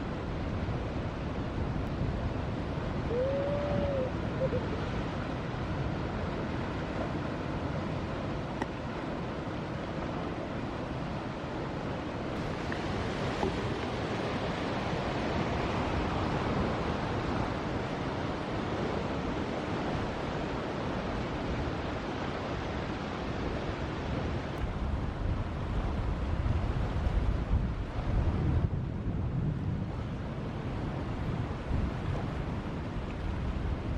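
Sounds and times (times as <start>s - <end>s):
wind on microphone: 0.0s - 11.4s, 12.2s - 33.9s
ocean surf breaking: 0.1s - 24.9s.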